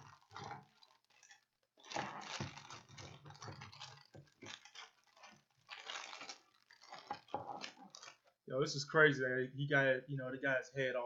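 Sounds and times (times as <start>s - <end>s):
plastic packaging rustling: 0.0s - 8.4s.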